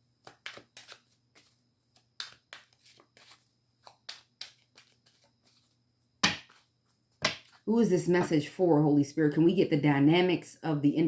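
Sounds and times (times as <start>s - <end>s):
cards being shuffled: 0.2s - 7.6s.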